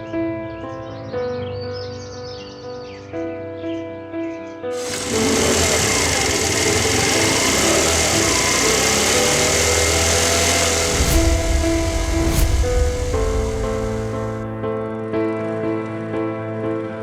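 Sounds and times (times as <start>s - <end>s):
background music: 0.0s - 17.0s
motorcycle engine and wind rush: 9.8s - 14.8s.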